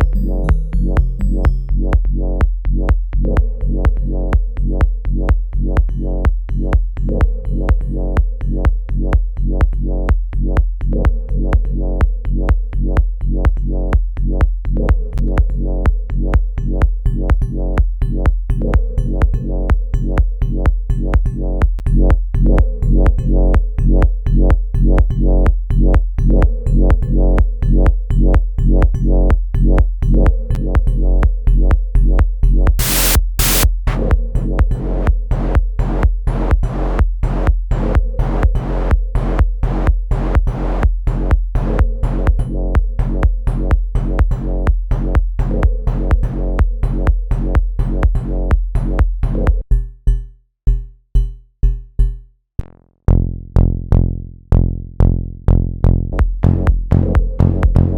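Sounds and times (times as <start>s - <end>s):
drum machine beat: 0.0s - 25.1s, 32.7s - 34.3s, 41.3s - 52.4s, 56.2s - 57.9s
deep sustained bass: 0.0s - 49.7s, 52.6s - 57.9s
bursts of high noise: 32.8s - 33.7s.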